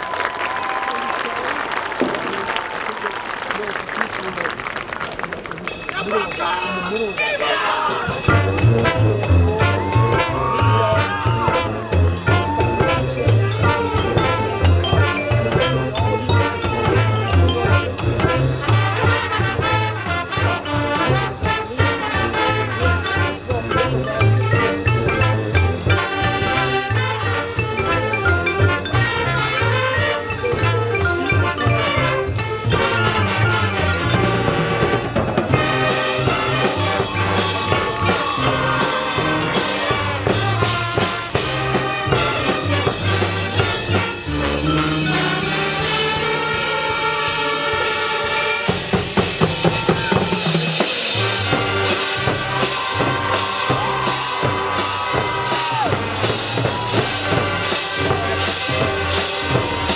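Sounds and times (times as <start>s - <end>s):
brass instruments playing: 0.0s - 59.9s
drumline: 0.0s - 59.9s
marching bass line: 8.0s - 59.9s
drum strokes: 34.1s - 59.9s.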